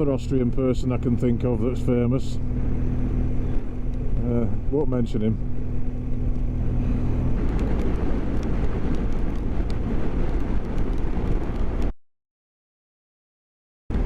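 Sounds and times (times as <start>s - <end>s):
motorcycle engine: 0.8s - 9.6s
wind rush: 2.2s - 11.9s.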